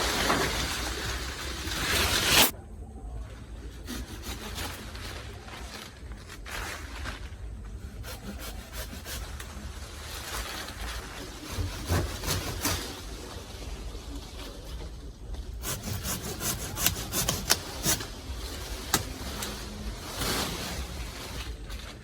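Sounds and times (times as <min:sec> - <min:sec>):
hand saw cutting wood: 0:03.7 - 0:05.0, 0:07.8 - 0:09.5, 0:11.4 - 0:13.0, 0:15.6 - 0:18.2.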